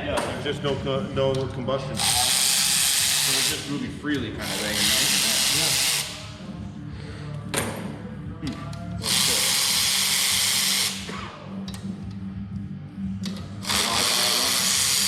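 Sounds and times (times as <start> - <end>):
power tool hissing: 2.0 - 3.7, 4.4 - 6.2, 9.0 - 11.1, 13.6 - 15.0.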